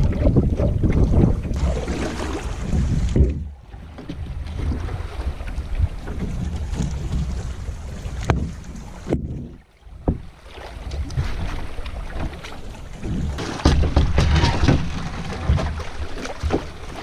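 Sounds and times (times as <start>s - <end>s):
canoe paddling: 0.0s - 17.0s
wind buffeting microphone: 0.0s - 17.0s
sharp knocks: 13.4s - 15.8s.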